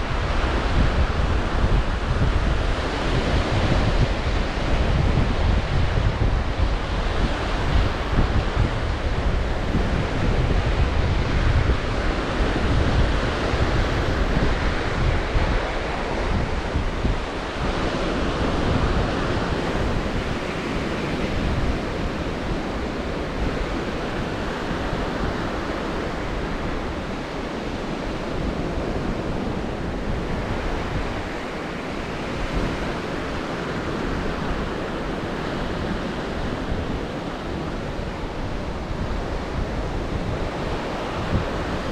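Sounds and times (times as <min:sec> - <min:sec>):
surf washing onto shore: 0:00.0 - 0:41.9
wind rumbling on microphone: 0:00.0 - 0:41.9.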